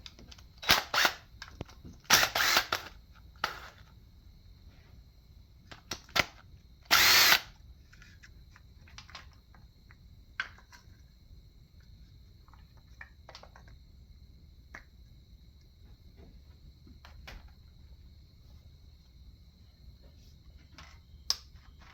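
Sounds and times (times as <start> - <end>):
power tool burst: 2.1 - 2.9, 6.9 - 7.5.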